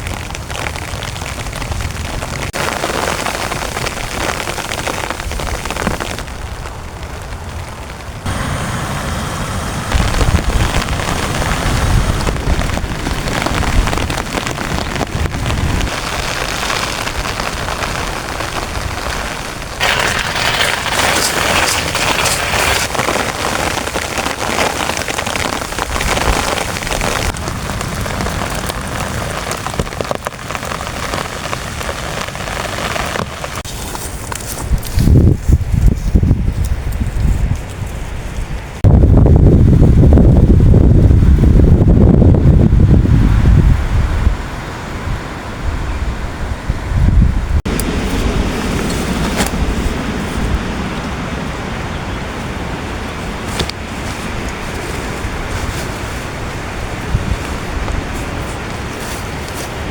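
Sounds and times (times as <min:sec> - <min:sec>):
heavy rain on a tent: 0:00.0 - 0:34.6, 0:47.5 - 0:59.9.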